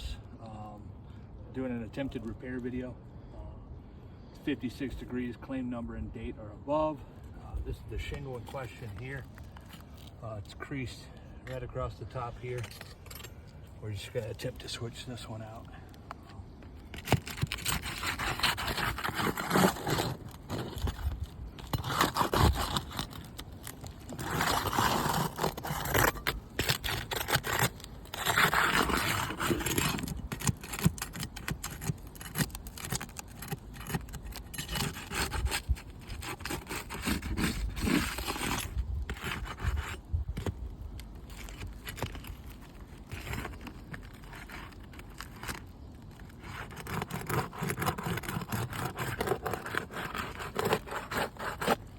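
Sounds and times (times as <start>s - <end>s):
roof shingles being scraped: 16.4s - 51.9s.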